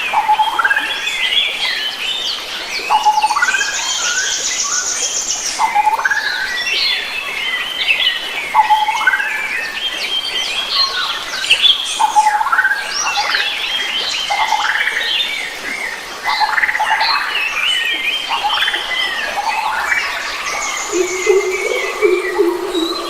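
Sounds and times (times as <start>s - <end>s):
forest birds singing and calling: 0.0s - 23.0s
lower steady bird call: 16.3s - 23.0s.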